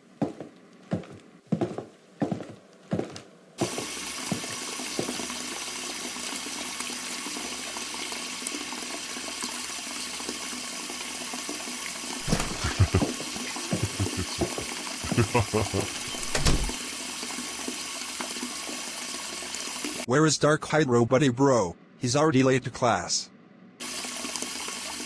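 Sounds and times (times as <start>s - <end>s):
water rushing: 12.2s - 16.8s.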